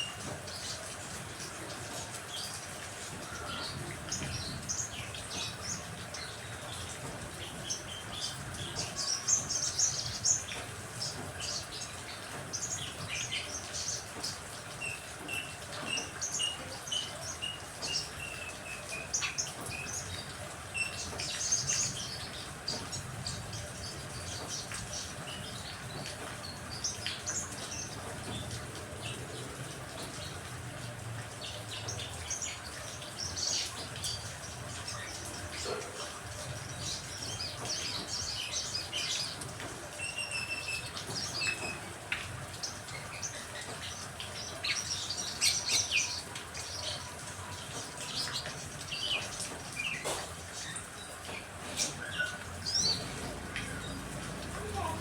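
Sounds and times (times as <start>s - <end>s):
rain hissing: 0.0s - 55.0s
songbirds chirping: 0.0s - 55.0s.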